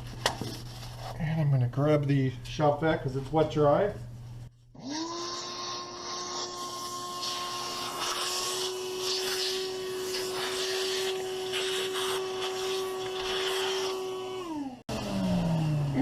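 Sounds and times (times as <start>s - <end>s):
shop vac whining: 0.0s - 16.0s.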